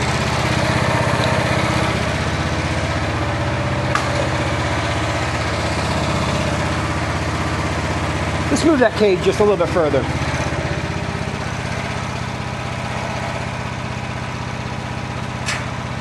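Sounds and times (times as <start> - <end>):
engine running steadily: 0.0 - 16.0
sharp click: 15.4 - 15.8.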